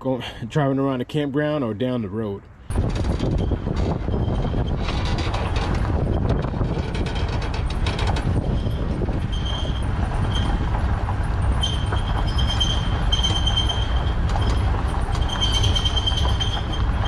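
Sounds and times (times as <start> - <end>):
vehicle and trailer rumbling: 0.0 - 17.0
high-pitched squeal: 3.2 - 10.7, 11.5 - 17.0.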